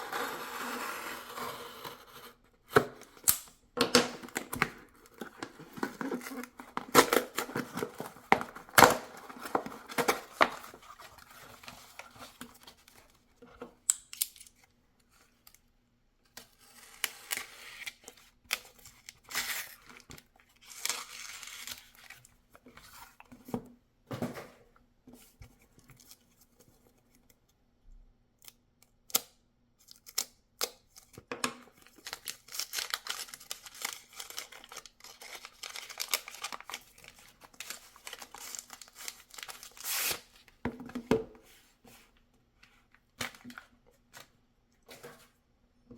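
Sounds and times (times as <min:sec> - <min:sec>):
packaging tearing and crinkling: 0:04.2 - 0:12.2, 0:31.8 - 0:40.3.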